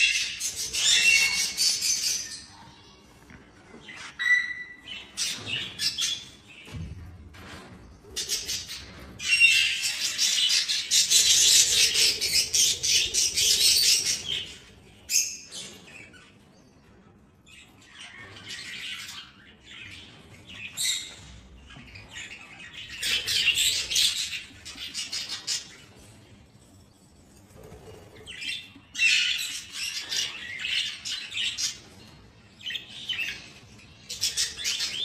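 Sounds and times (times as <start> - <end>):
budgerigars chattering and squawking: 0.0 - 2.6, 8.1 - 16.4, 17.8 - 25.9.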